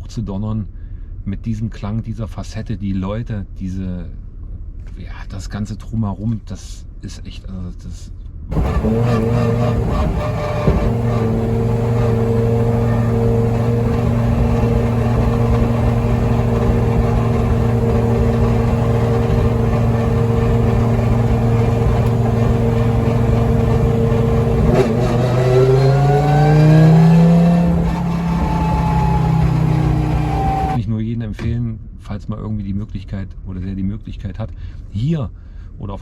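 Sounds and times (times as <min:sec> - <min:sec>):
turbocharged car engine revving: 0:08.5 - 0:30.8.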